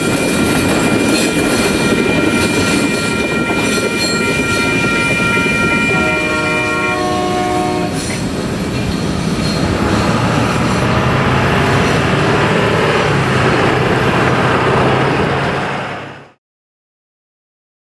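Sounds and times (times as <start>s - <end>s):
train rumbling past on rails: 0.0s - 16.4s
train horn chord: 1.6s - 8.2s.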